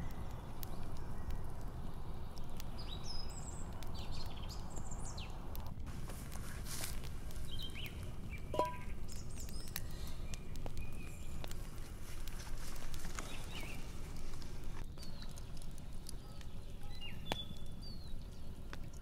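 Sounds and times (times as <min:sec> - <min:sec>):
faint clicks: 0:00.0 - 0:04.8
low outdoor rumble: 0:00.0 - 0:19.0
small birds chirping: 0:00.0 - 0:19.0.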